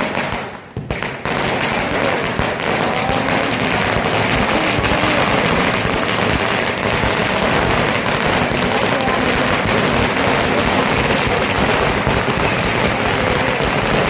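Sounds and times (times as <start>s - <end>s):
firecrackers banging: 0.0s - 14.0s.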